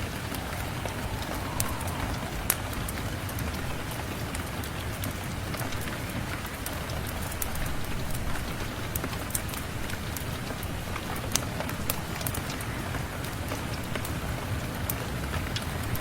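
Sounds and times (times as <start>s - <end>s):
low rumble: 0.0s - 5.0s
fireplace crackling: 0.0s - 14.2s
rain hiss: 0.0s - 16.0s.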